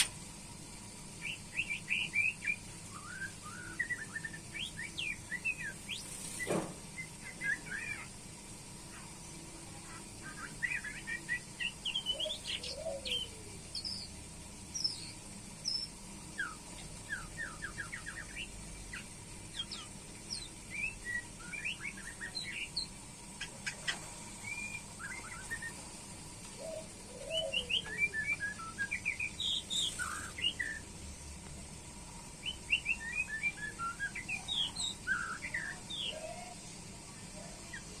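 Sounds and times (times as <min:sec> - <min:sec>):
bird singing whistles and trills: 0:01.2 - 0:08.1, 0:10.2 - 0:14.1, 0:14.7 - 0:22.9, 0:24.4 - 0:25.8, 0:26.6 - 0:30.8, 0:32.4 - 0:36.6.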